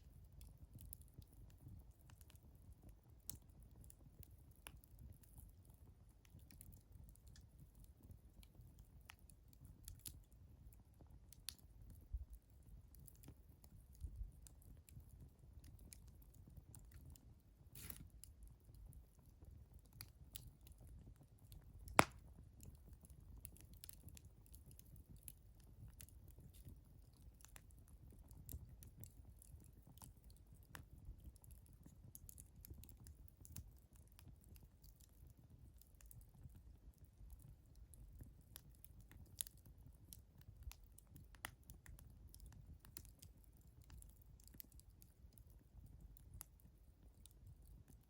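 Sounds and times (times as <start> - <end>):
wood fire crackling: 0.1 - 48.0
fire popping: 17.6 - 18.5, 21.6 - 33.7.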